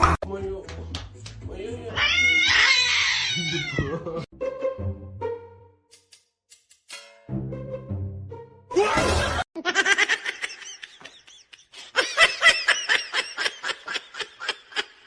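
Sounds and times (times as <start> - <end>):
person laughing: 3.4 - 4.3, 8.8 - 15.0.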